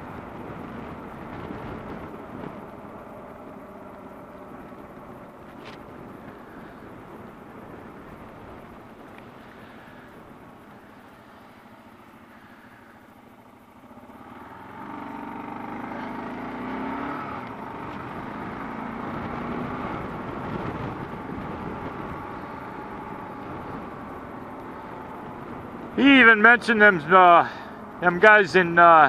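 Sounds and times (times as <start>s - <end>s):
wind noise: 0.0s - 10.9s, 16.8s - 29.0s
motorcycle engine running: 0.0s - 29.0s.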